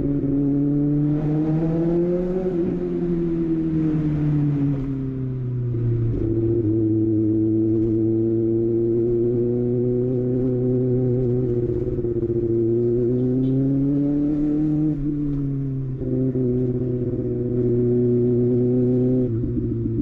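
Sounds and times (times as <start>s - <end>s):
motorcycle engine running: 14.6s - 20.0s.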